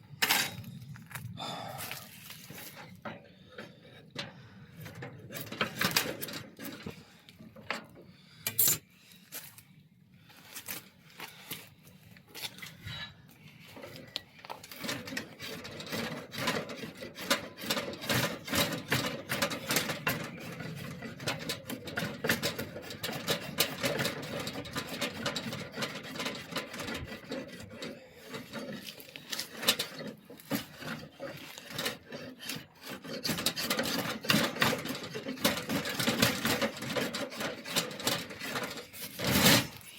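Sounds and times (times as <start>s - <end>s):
hand tool rasping wood: 14.5s - 39.9s.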